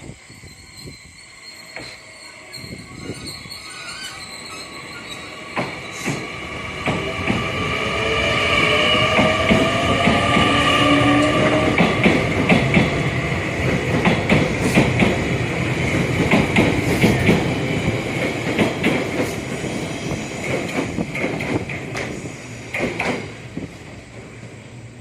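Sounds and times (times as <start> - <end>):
electric train running on rails: 0.0 - 25.0
wheels clacking over rail joints: 9.1 - 19.6, 20.4 - 23.5.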